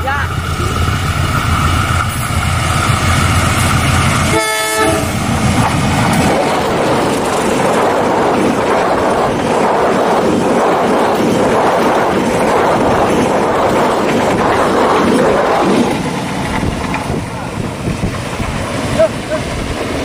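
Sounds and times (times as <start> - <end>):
locomotive engine rumbling: 0.0 - 20.0
train wheels rattling on rails: 0.0 - 20.0
train horn blast: 4.3 - 5.2.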